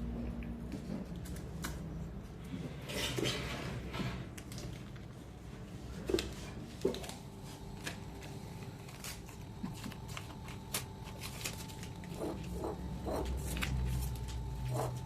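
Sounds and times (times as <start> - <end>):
faint steady hum: 4.3 - 15.0.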